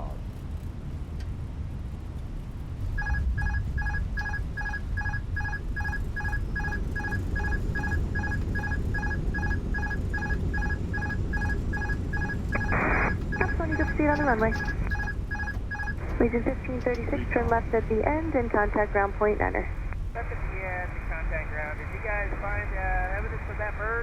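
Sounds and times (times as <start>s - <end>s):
aircraft rumble rolling out: 0.0s - 24.0s
rapid electronic beeping: 3.0s - 19.9s.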